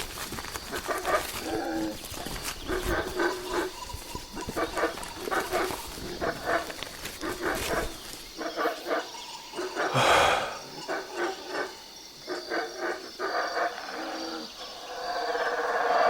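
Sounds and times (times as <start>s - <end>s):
faint high-pitched insect tones: 0.0s - 16.0s
loud animal cry: 8.4s - 11.8s
short repeated animal calls: 9.6s - 11.7s.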